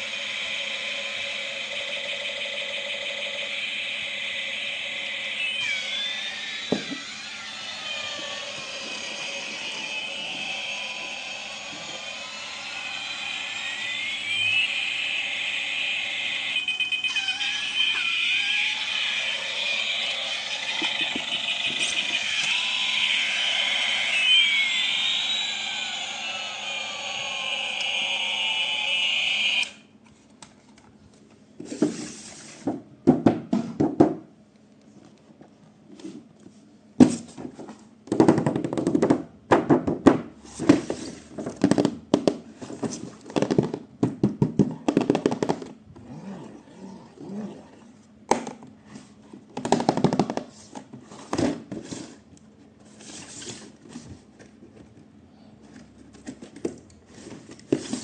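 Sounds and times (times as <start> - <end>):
electronic toy gliding tones: 0.0 - 29.8.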